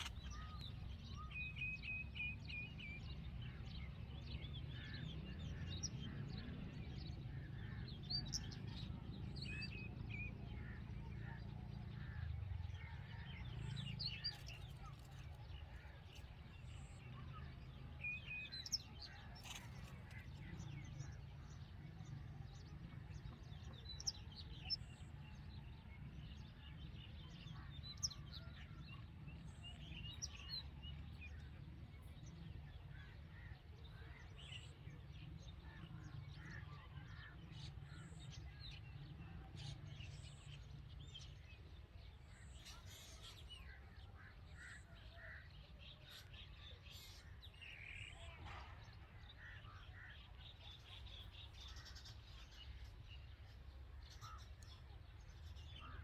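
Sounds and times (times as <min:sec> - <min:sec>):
birds chirping: 0:00.0 - 0:03.6.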